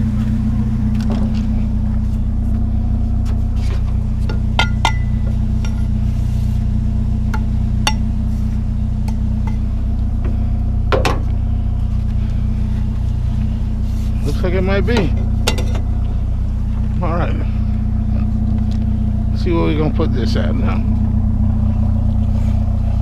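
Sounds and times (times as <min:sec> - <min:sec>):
vehicle engine idling: 0:00.0 - 0:23.0
knocks and clinks of scrap: 0:04.2 - 0:06.0, 0:15.1 - 0:15.9.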